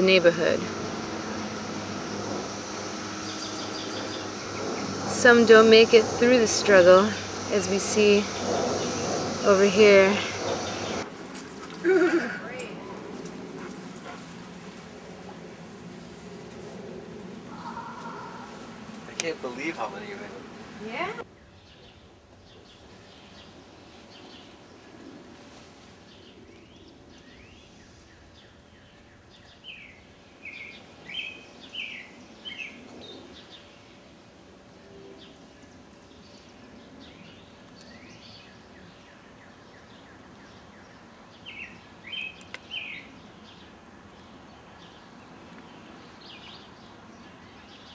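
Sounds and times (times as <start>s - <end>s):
songbird chirping: 1.8s - 11.8s, 35.1s - 47.9s.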